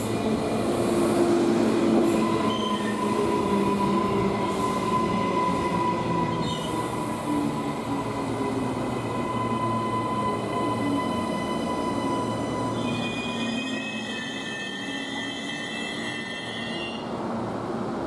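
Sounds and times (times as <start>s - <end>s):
electric train rumbling: 0.0s - 18.0s
train wheels squealing: 2.1s - 8.4s, 9.0s - 17.1s.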